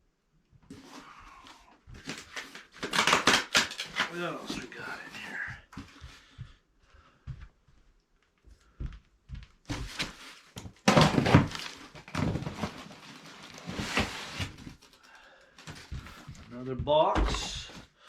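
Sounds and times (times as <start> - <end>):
cardboard rustling and scraping: 0.7 - 6.2, 9.7 - 15.0.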